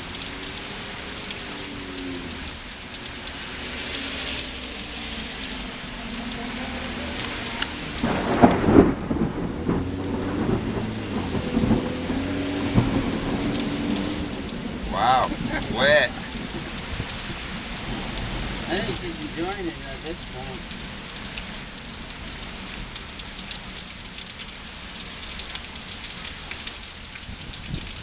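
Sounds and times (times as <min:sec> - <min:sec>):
heavy rain pouring: 0:00.0 - 0:28.0
low rumble of thunder: 0:07.7 - 0:15.6.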